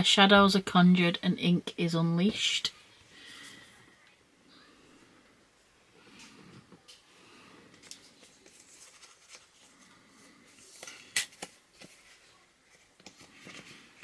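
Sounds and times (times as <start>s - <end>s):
paper and card rustling: 7.7s - 14.0s.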